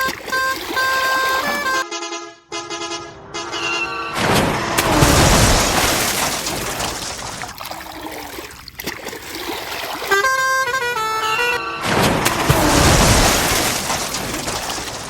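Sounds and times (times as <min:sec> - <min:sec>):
sudden loud rush of noise: 0:02.9 - 0:06.7.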